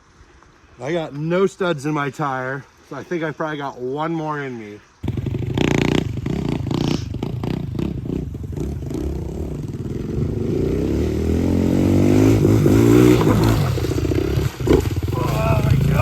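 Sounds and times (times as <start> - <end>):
pit bike engine revving: 5.0 - 16.0.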